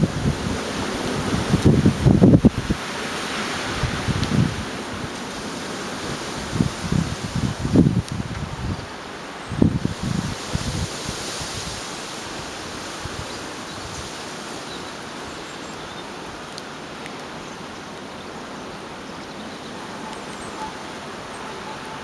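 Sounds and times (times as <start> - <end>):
storm wind rushing: 0.0 - 14.1.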